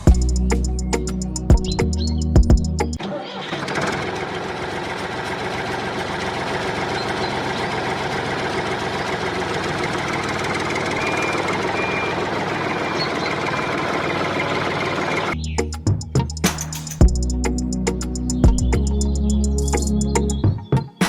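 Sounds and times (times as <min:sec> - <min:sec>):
drum-led music: 0:00.0 - 0:03.0, 0:15.4 - 0:21.0
small tractor engine running: 0:03.0 - 0:15.5.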